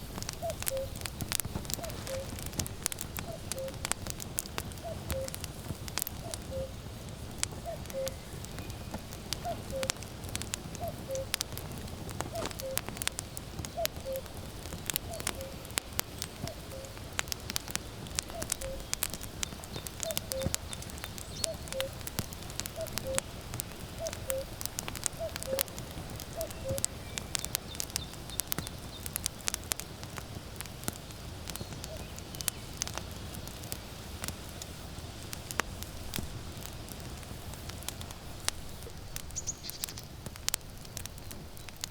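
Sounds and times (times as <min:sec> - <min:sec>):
firewood crackling and popping: 0:00.0 - 0:41.9
cuckoo calling: 0:00.3 - 0:03.9, 0:04.7 - 0:05.4, 0:06.1 - 0:06.8, 0:07.5 - 0:10.0, 0:10.7 - 0:22.1, 0:22.7 - 0:28.1, 0:31.7 - 0:32.2.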